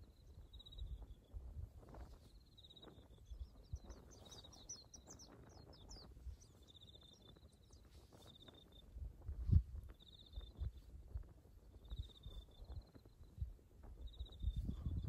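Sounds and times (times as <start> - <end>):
birds singing faintly: 0.0 - 15.0.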